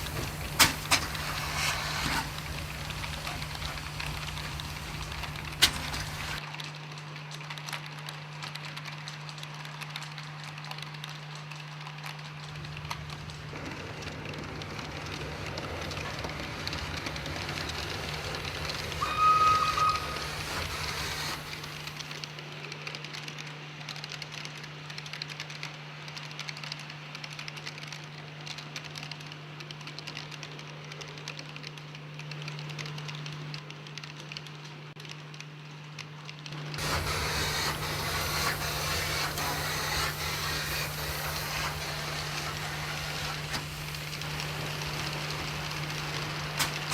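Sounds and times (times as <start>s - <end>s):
model train hum: 0.0s - 6.4s, 11.8s - 22.5s, 36.8s - 46.9s
train rumble: 0.0s - 6.4s, 12.4s - 22.1s, 36.8s - 46.9s
wheels clicking on track: 0.0s - 35.2s, 36.4s - 46.9s
short high whistle toot: 19.0s - 21.4s.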